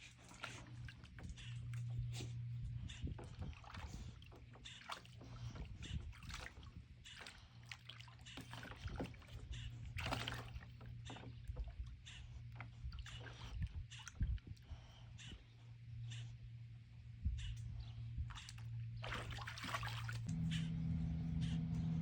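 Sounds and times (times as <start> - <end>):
steady low hum: 0.0 - 22.0
dog splashing in water: 6.1 - 9.4, 10.0 - 10.8, 18.3 - 20.3.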